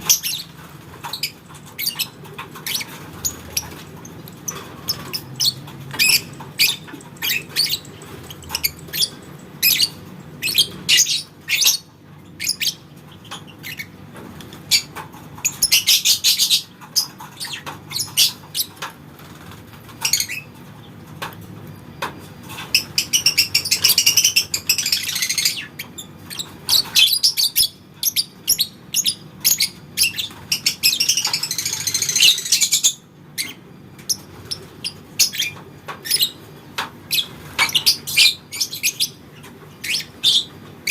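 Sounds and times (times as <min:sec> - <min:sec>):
lovebirds chirping: 0:00.0 - 0:18.9, 0:22.6 - 0:36.4, 0:37.0 - 0:40.9
lovebird rapid chattering trill: 0:01.1 - 0:11.8.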